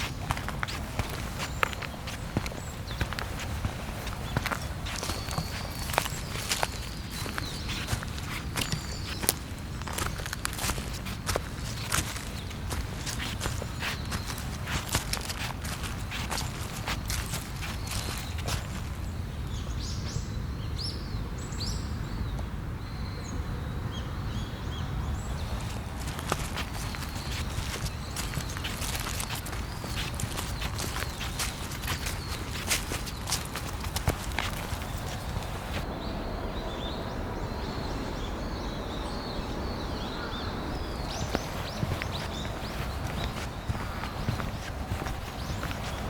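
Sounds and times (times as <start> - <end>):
footstep: 0.0 - 19.2, 25.3 - 35.9, 40.8 - 46.0
small birds chirping: 0.0 - 46.0
steady low rush: 25.0 - 46.0.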